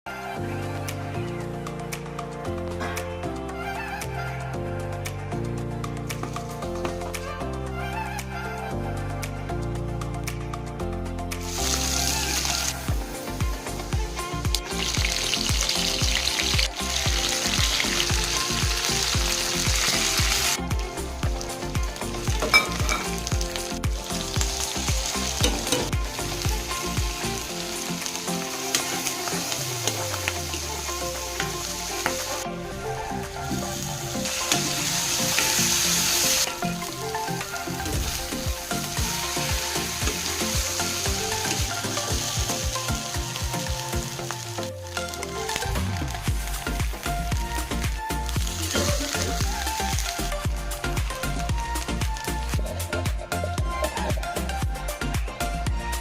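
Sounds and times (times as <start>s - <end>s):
rice sizzling in a pan: 11.4s - 50.3s.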